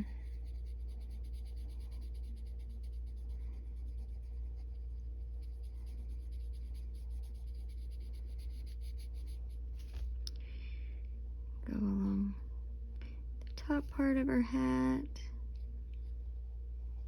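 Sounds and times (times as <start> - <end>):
pencil scratching on paper: 0.0 - 10.0
steady low hum: 0.0 - 17.0.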